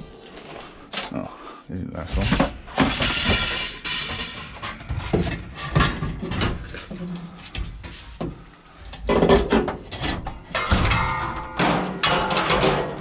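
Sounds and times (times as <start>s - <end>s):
scrap metal clattering: 2.2s - 6.9s, 8.9s - 13.0s.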